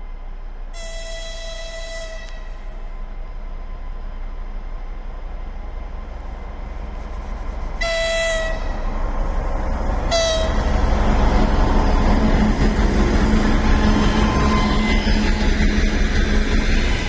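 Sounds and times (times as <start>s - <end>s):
locomotive engine rumble: 0.0s - 17.0s
locomotive horn blasts: 0.8s - 2.7s, 7.8s - 8.9s, 10.1s - 10.7s.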